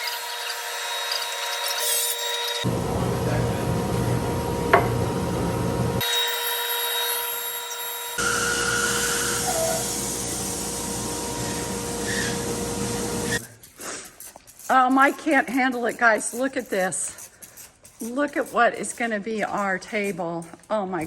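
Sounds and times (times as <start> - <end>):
power tool cutting wood: 0.0 - 3.7, 5.9 - 13.4.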